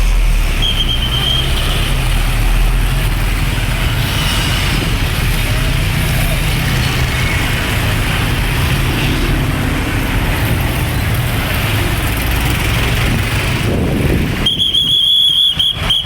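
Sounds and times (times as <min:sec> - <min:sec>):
heavy vehicle engine passing: 0:00.0 - 0:14.6
road traffic: 0:00.0 - 0:16.0
shrill steady whistle: 0:00.5 - 0:01.6, 0:14.4 - 0:16.0.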